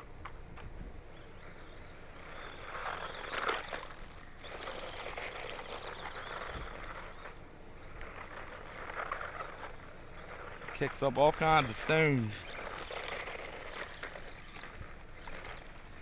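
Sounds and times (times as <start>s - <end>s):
electric rc truck motor whining: 0.0s - 16.0s
tyres crunching through gravel: 10.4s - 14.6s.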